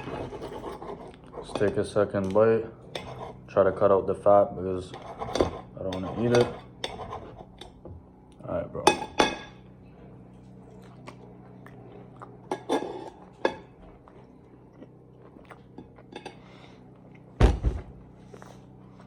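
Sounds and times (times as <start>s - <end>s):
person chewing: 1.1s - 1.4s, 10.4s - 12.5s, 13.2s - 17.3s
loud deep thump: 17.4s - 18.0s.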